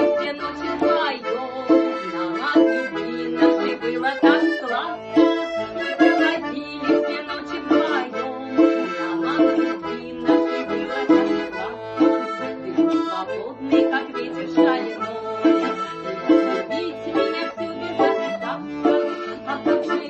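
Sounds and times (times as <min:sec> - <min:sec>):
accordion playing: 0:00.0 - 0:20.0.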